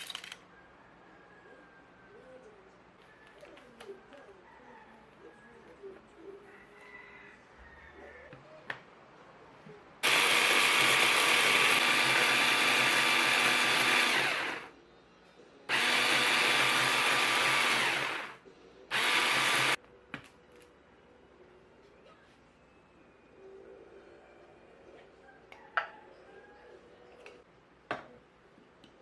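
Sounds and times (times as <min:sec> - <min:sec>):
kitchen appliance motor running: 0:10.0 - 0:14.7, 0:15.7 - 0:19.8.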